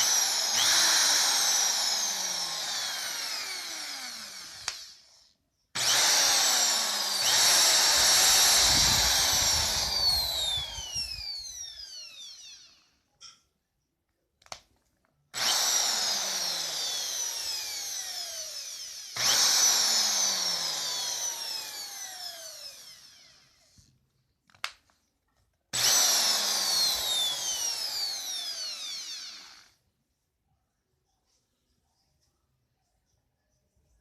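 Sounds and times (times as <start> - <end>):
electric drill motor whining: 0.0 - 13.0, 15.3 - 23.9, 25.8 - 29.8.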